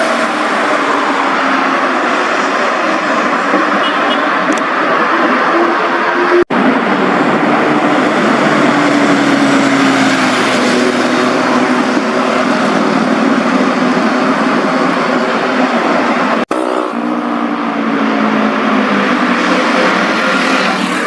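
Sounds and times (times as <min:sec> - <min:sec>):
steady rush of noise: 0:00.0 - 0:21.0
motorcycle engines running: 0:05.8 - 0:21.0.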